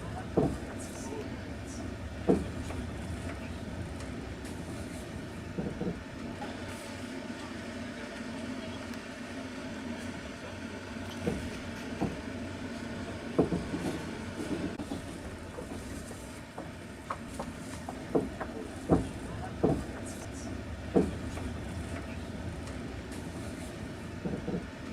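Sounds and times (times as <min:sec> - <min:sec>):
wheels clacking over rail joints: 0:00.0 - 0:00.9, 0:01.8 - 0:06.6, 0:13.0 - 0:24.9
train rumble inside carriage: 0:00.0 - 0:24.9.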